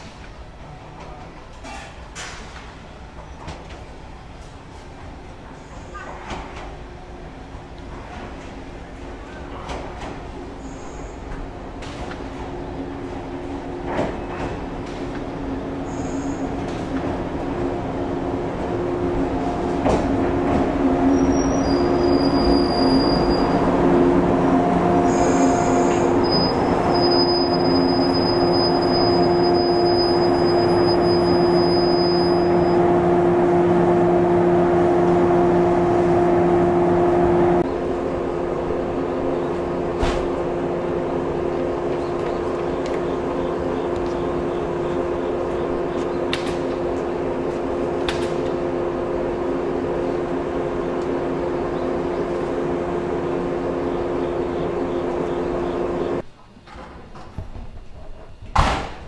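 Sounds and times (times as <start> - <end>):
electric train humming: 6.6 - 56.3
high-pitched wheel squeal: 21.0 - 23.8, 25.0 - 32.9.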